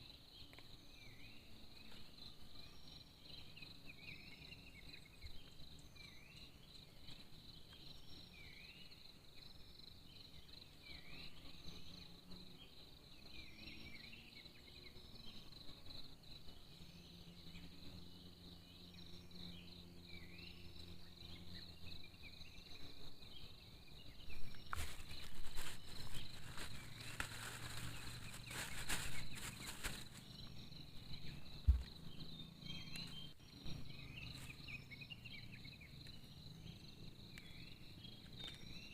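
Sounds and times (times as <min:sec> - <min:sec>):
insect chirping calls: 0:00.0 - 0:38.9
insects droning: 0:00.0 - 0:38.9
rustling and clicking: 0:24.5 - 0:30.3.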